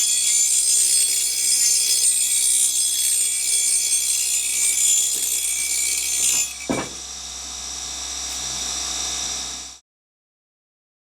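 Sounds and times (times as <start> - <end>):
bench grinder grinding metal: 0.0 - 9.7
single knock: 6.7 - 7.0.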